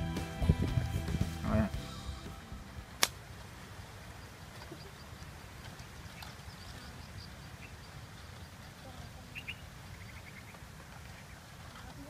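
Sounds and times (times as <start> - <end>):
steady low rumble: 0.0 - 4.2
faint bird calls: 4.1 - 12.0.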